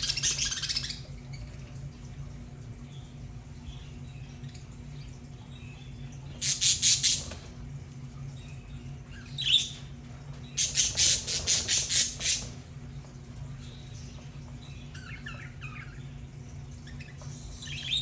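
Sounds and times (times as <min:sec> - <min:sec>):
steady low hum: 0:00.0 - 0:18.0
budgerigars squawking: 0:06.4 - 0:07.4, 0:10.6 - 0:12.6.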